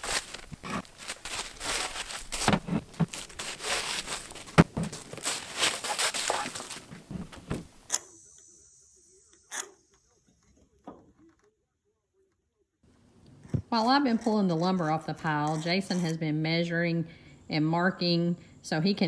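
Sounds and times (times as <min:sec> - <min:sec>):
wooden boards knocking and scraping: 0:00.0 - 0:07.8.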